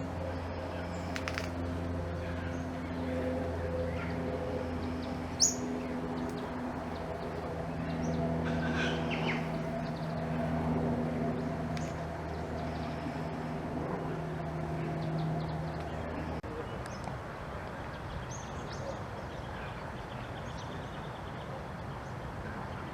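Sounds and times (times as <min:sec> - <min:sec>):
low hum: 0:00.0 - 0:17.0
birds chirping: 0:00.0 - 0:17.1.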